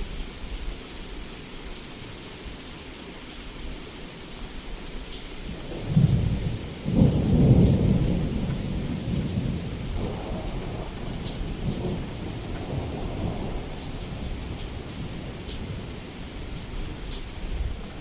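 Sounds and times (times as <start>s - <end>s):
heavy rain on window: 0.0s - 18.0s
thunder clap rolling: 5.5s - 15.8s.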